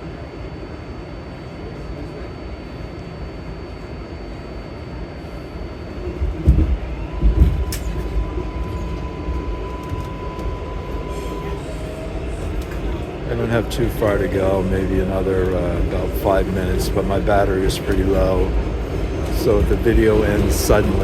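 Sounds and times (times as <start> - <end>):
steady train whine: 0.0 - 21.0
subway train rumbling: 0.0 - 21.0.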